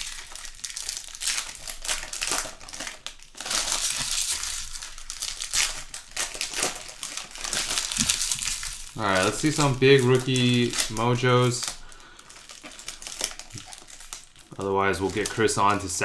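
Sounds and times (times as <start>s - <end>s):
wrappers crinkling: 0.0s - 16.0s
cards being handled: 7.7s - 11.8s.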